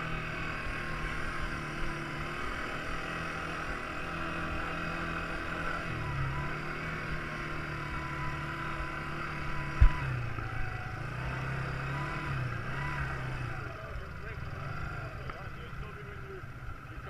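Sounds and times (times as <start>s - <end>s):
quad bike engine revving: 0.0s - 17.0s
sharp low thump: 9.8s - 10.1s.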